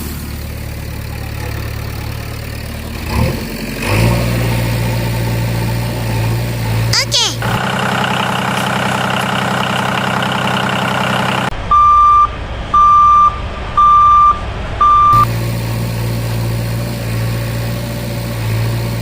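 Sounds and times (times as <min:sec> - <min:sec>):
vehicle engine running: 0:00.0 - 0:19.0
reversing alarm beeping: 0:11.7 - 0:15.3.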